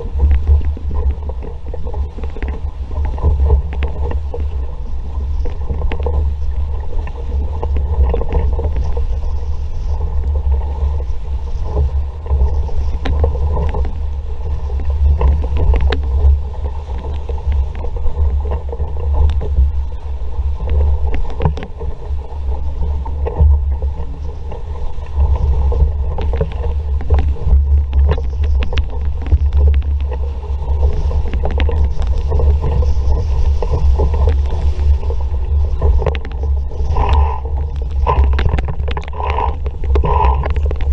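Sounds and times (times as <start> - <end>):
water rushing past hull: 0.0 - 40.9
wind rumble on microphone: 0.0 - 40.9.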